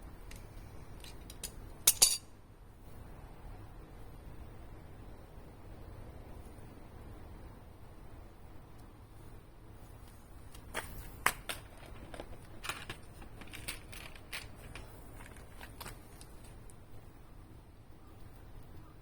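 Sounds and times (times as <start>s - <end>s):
tools clicking and knocking: 1.0s - 2.3s, 10.5s - 16.0s.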